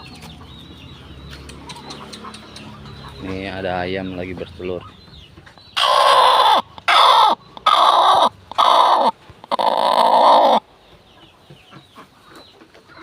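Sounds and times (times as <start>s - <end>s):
hen calling harshly: 5.8s - 10.6s.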